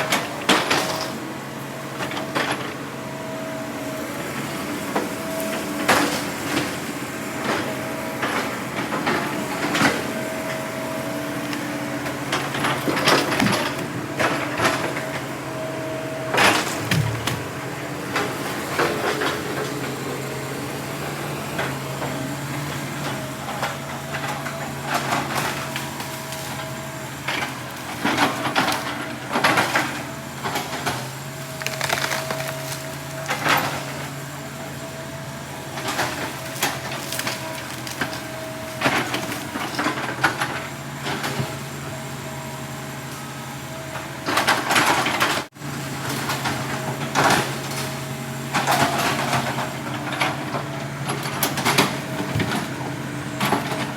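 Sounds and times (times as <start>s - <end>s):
diesel machine engine running: 0.0s - 53.9s
logs knocking and crunching: 16.5s - 17.6s, 31.4s - 34.0s.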